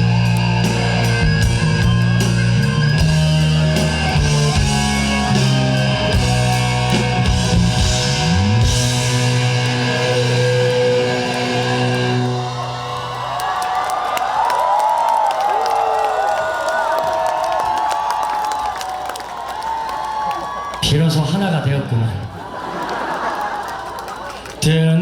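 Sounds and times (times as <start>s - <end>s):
rock band playing: 0.0s - 14.4s.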